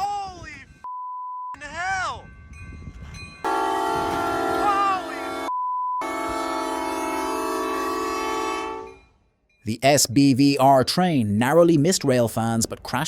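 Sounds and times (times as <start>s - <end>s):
censor bleep: 0.8s - 1.6s, 5.5s - 6.0s
train horn blowing: 3.4s - 9.0s.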